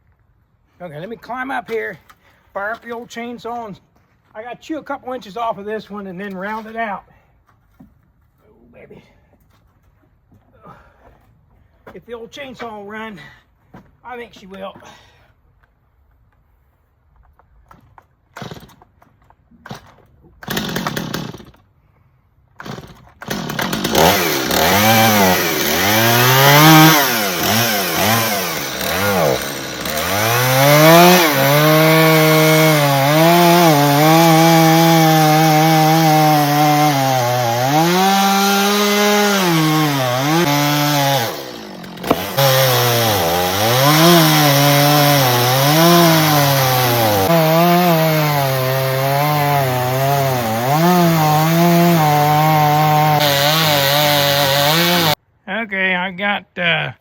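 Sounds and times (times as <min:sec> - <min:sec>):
chainsaw cutting log: 0:18.3 - 0:19.0, 0:19.6 - 0:21.7, 0:22.6 - 0:55.2
chainsaw starter pulls: 0:18.3 - 0:19.0, 0:19.6 - 0:21.6, 0:22.6 - 0:55.2.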